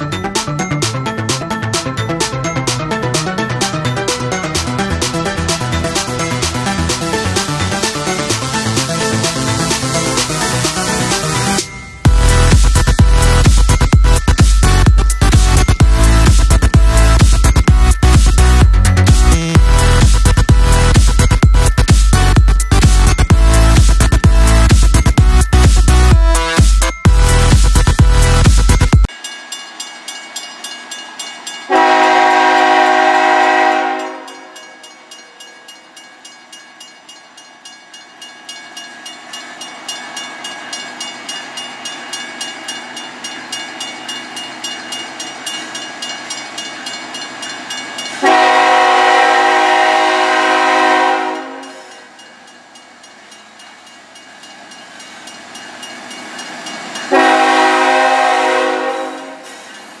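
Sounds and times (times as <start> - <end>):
locomotive horn blasts: 31.7 - 34.6, 48.2 - 52.0, 57.1 - 59.6.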